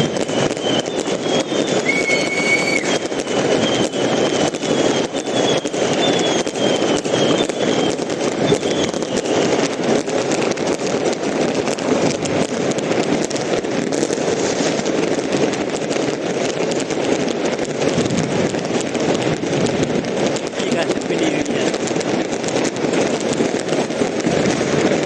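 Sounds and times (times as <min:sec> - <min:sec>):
firecrackers banging and crackling: 0:00.0 - 0:25.0
faint falling whistle: 0:00.1 - 0:09.6.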